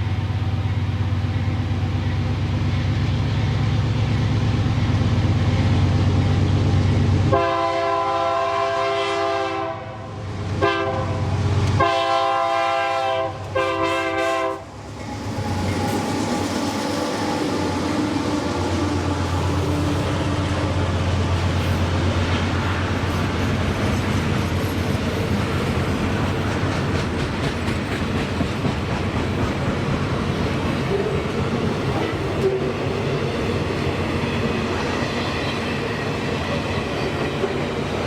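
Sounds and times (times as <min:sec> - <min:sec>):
train engine rumble: 0:00.0 - 0:38.0
locomotive air horn blasts: 0:07.3 - 0:11.2, 0:11.8 - 0:14.7.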